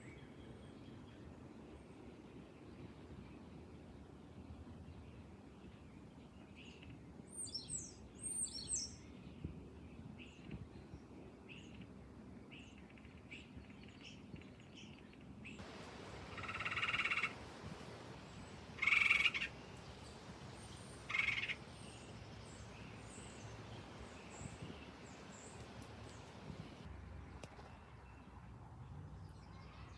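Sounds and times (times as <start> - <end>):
loud bird calls: 15.6 - 26.8
birds chirping: 15.6 - 26.9.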